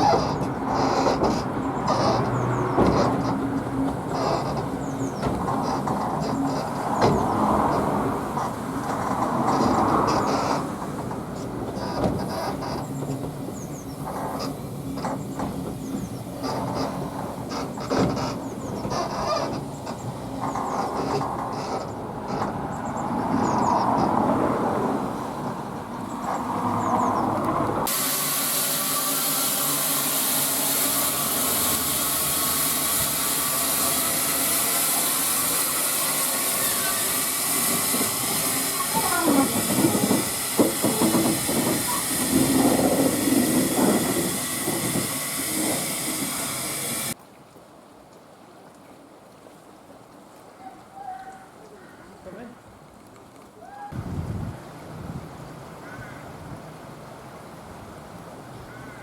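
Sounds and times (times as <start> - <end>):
steam train running on rails: 0.0 - 47.2
steam hissing from locomotive: 27.9 - 47.2
voices: 37.9 - 42.4.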